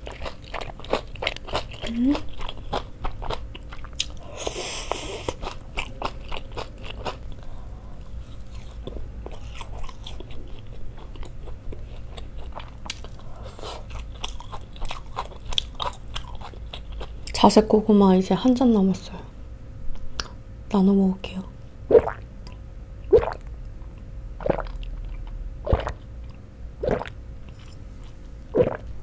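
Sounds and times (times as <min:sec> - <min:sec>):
person chewing crunchy food: 0:00.0 - 0:17.4, 0:21.9 - 0:29.0.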